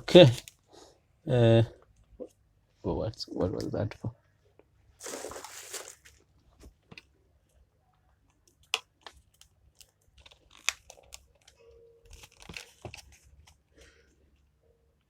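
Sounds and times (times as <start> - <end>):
packaging crinkling: 5.0 - 6.3, 9.0 - 13.6.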